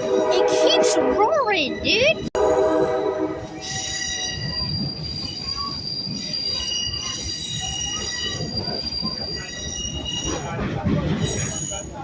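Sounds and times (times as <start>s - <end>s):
train cars rumbling: 0.0s - 12.0s
train wheels squealing on rails: 3.4s - 12.0s.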